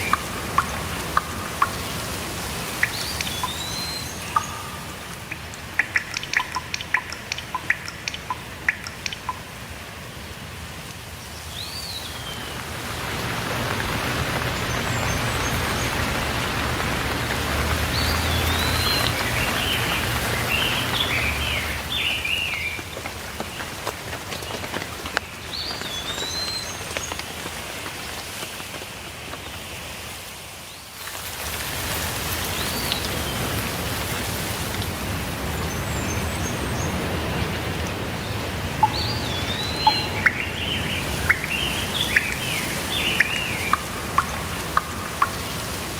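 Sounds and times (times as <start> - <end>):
songbirds chirping: 0.0 - 9.6, 11.0 - 27.3, 35.4 - 45.9
sharp drips tapping: 0.0 - 9.8, 12.0 - 27.6, 35.6 - 45.9
steady rain: 0.0 - 45.9.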